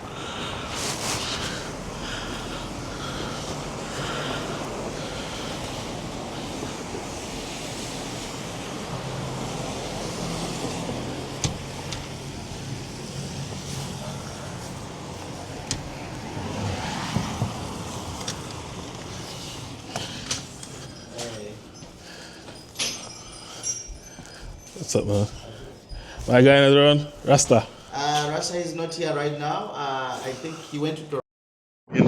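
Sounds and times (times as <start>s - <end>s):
car engine humming: 0.0s - 24.1s
road noise: 0.0s - 31.2s.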